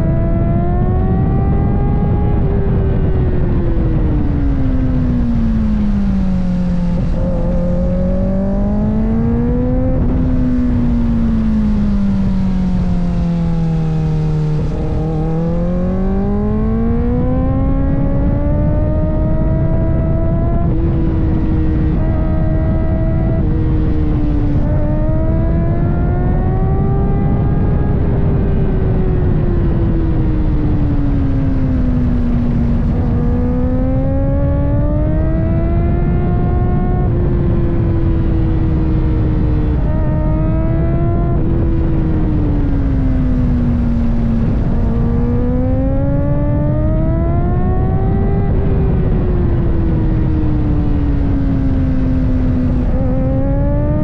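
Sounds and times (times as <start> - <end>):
motorcycle engine at high revs: 0.0 - 54.0
steady low rush: 2.6 - 18.3.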